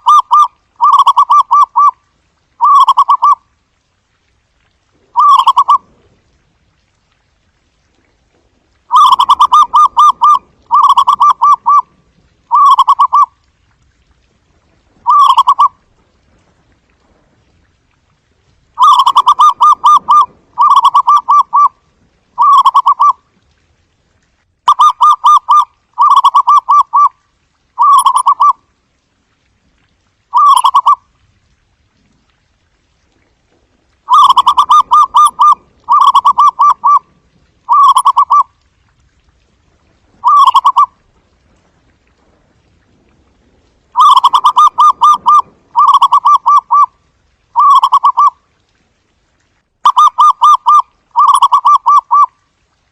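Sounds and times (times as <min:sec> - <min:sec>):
dove cooing: 0:00.0 - 0:02.0, 0:02.6 - 0:03.4, 0:05.2 - 0:05.8, 0:08.9 - 0:11.9, 0:12.5 - 0:13.3, 0:15.0 - 0:15.7, 0:18.8 - 0:21.7, 0:22.4 - 0:23.2, 0:30.3 - 0:31.0, 0:34.1 - 0:37.1, 0:37.7 - 0:38.5, 0:40.2 - 0:40.9, 0:44.0 - 0:46.9, 0:47.6 - 0:48.4, 0:49.8 - 0:52.3.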